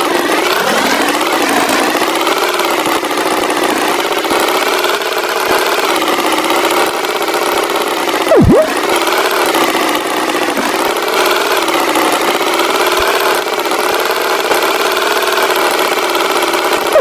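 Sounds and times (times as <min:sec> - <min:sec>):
tractor engine running: 0:00.0 - 0:17.0
swooping sound effect: 0:08.3 - 0:08.8.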